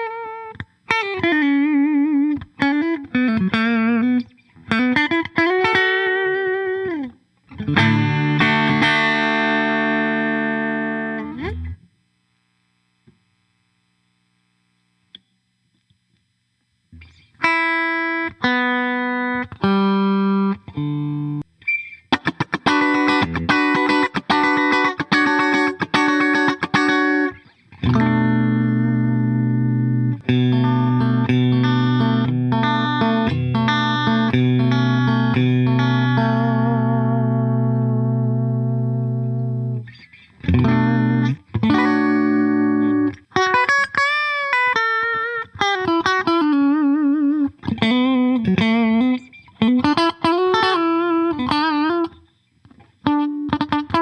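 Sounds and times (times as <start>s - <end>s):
electric guitar through an amp: 0.0s - 12.0s, 16.9s - 54.0s.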